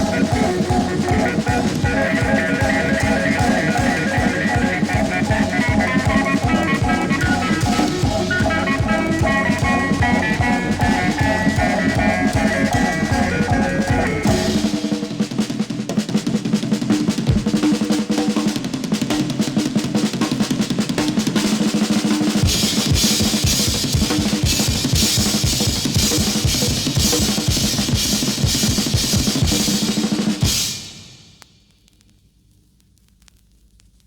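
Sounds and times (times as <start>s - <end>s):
low keyboard tones: 0.0s - 14.8s
pounding bass drum: 0.0s - 15.4s, 22.4s - 31.2s
drum kit rolls: 0.0s - 31.4s.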